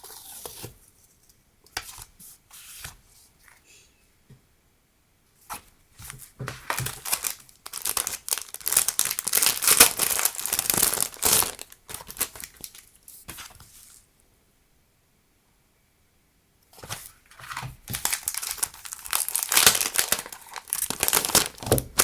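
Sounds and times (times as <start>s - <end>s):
packaging crinkling: 6.6s - 13.0s, 17.0s - 22.0s.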